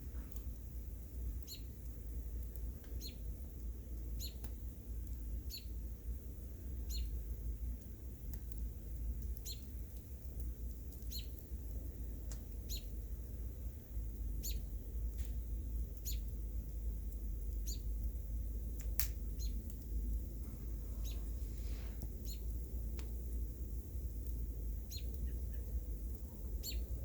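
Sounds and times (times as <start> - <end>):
small bird chirping: 1.4 - 1.8, 2.8 - 3.3, 4.1 - 4.5, 5.5 - 5.8, 6.8 - 7.2, 9.4 - 9.8, 11.0 - 11.4, 12.6 - 13.0, 14.4 - 14.7, 16.0 - 16.4, 17.5 - 18.0, 19.0 - 19.8, 20.8 - 22.6, 24.8 - 27.0
sharp cracks: 18.8 - 19.8.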